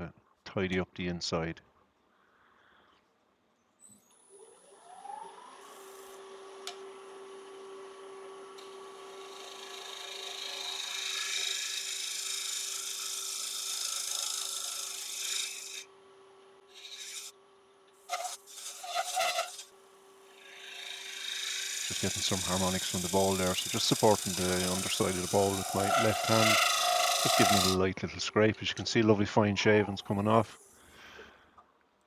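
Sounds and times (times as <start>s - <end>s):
wood lathe whine: 4.0s - 15.9s, 16.7s - 17.3s, 18.1s - 30.9s
scraper scraping wooden bowl: 18.1s - 19.7s, 21.8s - 27.9s, 29.7s - 30.8s.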